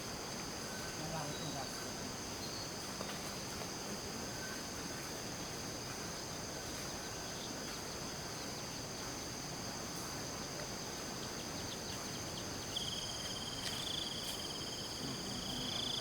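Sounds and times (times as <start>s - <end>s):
insects trilling: 4.0s - 16.0s.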